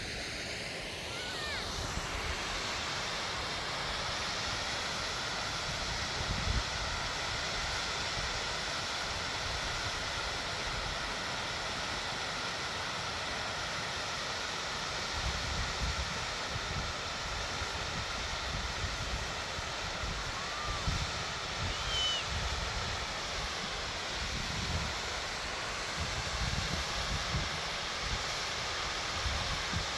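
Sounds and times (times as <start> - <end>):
waterfall rushing water: 0.0 - 15.0, 16.2 - 29.9.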